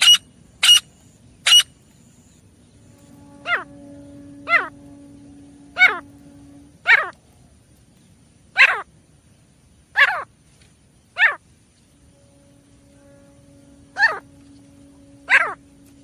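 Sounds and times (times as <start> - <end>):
faint steady hum: 0.0 - 16.0
francolin calling: 2.8 - 7.1, 12.1 - 16.0.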